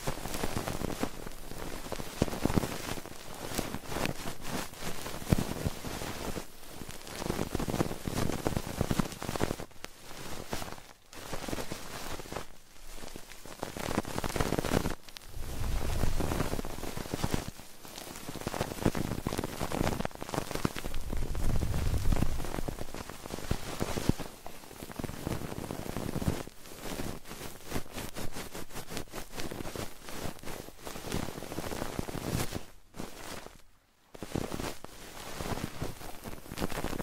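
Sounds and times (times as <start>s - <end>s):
crackling and rustling: 0.0s - 37.0s
low rumble: 15.3s - 16.4s, 20.9s - 22.8s.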